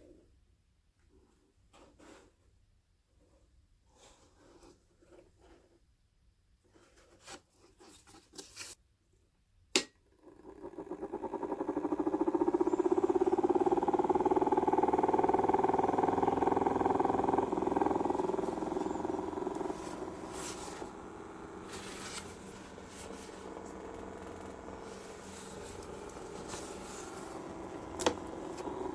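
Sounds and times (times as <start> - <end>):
small electric motor humming: 10.2 - 28.9.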